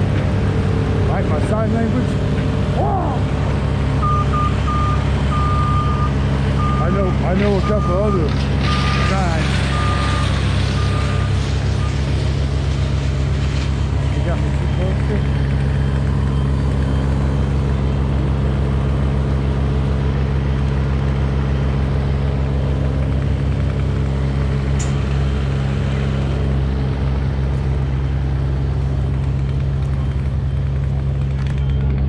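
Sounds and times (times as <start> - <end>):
truck engine humming: 0.0 - 32.0.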